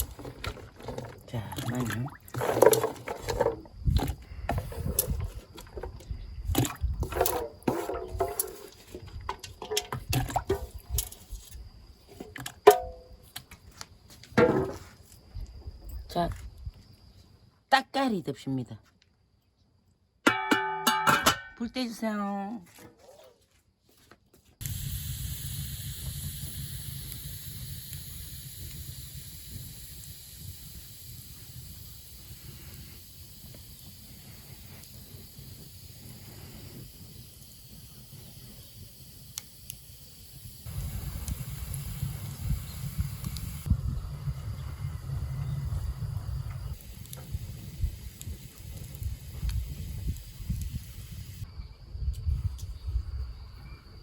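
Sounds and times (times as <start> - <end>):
splashes and knocks in a pot: 0.0 - 4.2, 4.9 - 11.2
wood fire rumble and hiss: 2.0 - 12.1, 24.6 - 51.5
sharp clink: 20.3 - 21.6
faint fire crackles: 22.7 - 51.5.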